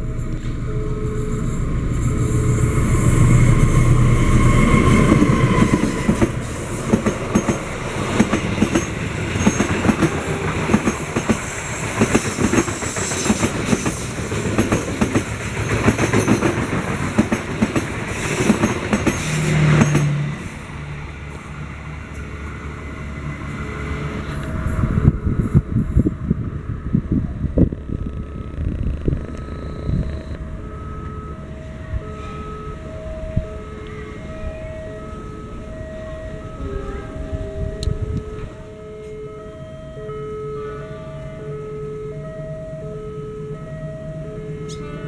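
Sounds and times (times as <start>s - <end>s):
locomotive engine running: 0.0s - 40.0s
train wheels clacking over rail joints: 4.9s - 20.2s.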